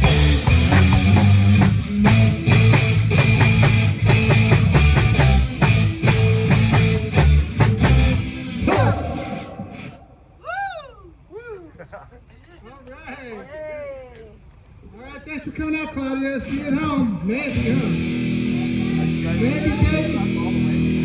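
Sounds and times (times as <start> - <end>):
live rock band playing: 0.0 - 10.1, 17.5 - 21.0.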